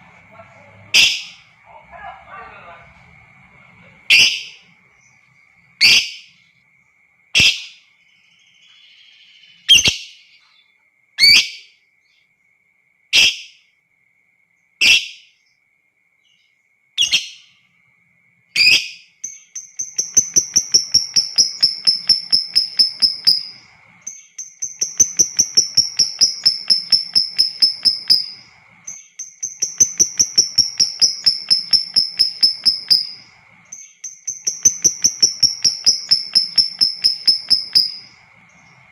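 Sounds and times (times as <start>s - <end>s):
faint high whine: 0.0s - 10.8s, 17.4s - 38.9s
bird chattering trills: 0.8s - 3.0s, 3.6s - 5.2s, 19.5s - 38.9s.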